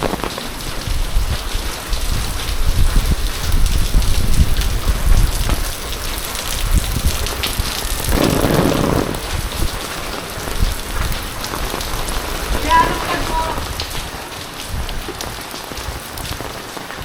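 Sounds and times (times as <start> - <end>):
heavy rain falling: 0.0 - 17.0
loud rushing noise: 8.0 - 9.7.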